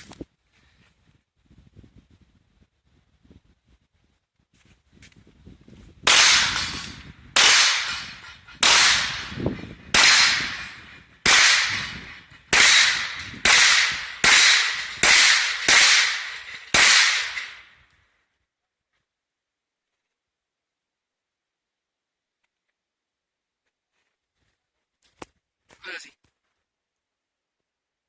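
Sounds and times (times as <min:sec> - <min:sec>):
gunshots with echo: 0:06.1 - 0:17.6.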